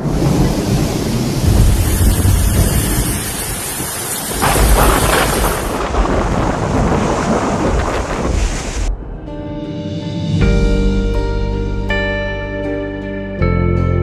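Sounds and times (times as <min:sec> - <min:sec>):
deep rumble: 0:00.0 - 0:03.8, 0:04.4 - 0:13.0
rain: 0:00.0 - 0:09.0
heavy wind: 0:00.0 - 0:11.7.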